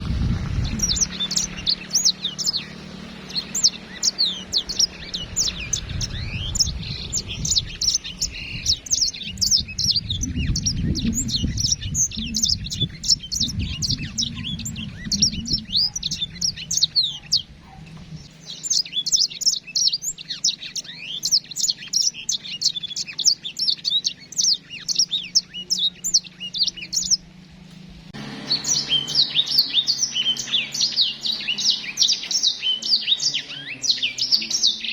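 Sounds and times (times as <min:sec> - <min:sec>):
low rumble: 0:00.0 - 0:18.3
finches chirping and twittering: 0:00.0 - 0:27.4, 0:28.2 - 0:34.9.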